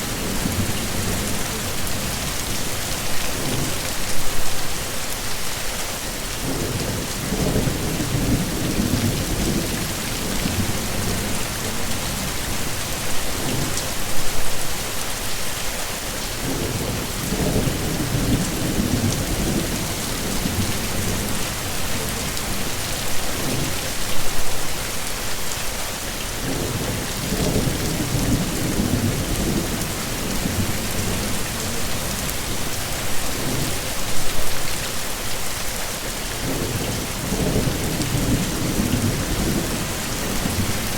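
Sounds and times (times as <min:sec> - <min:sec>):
heavy rain hissing: 0:00.0 - 0:40.9
low thunder rumbles: 0:06.4 - 0:14.4, 0:16.4 - 0:23.9, 0:26.5 - 0:34.1.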